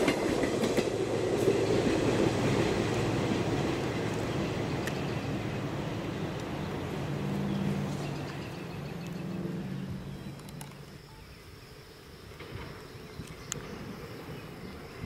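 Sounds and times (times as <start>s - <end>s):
diesel railcar engine drone: 0.0s - 11.6s
insect buzz: 6.1s - 15.0s.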